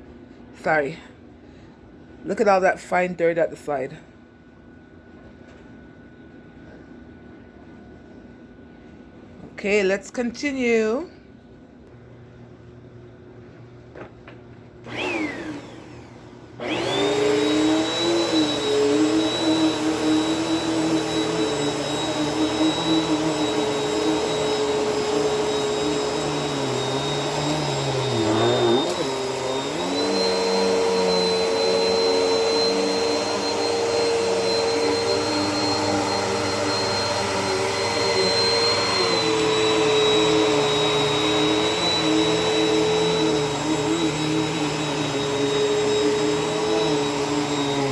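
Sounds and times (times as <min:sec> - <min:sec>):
vacuum cleaner motor: 0:14.8 - 0:47.9.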